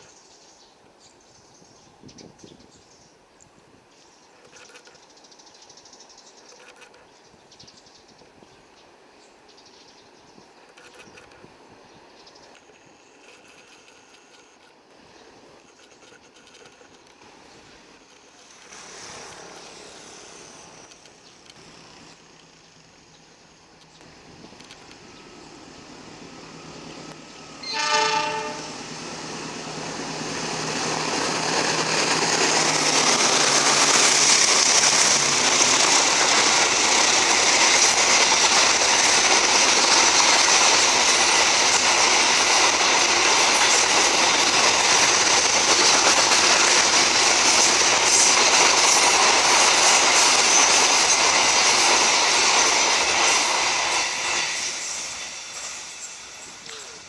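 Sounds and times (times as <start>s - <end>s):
train wheels on rails: 0.0s - 57.0s
train horn blast: 27.6s - 28.9s.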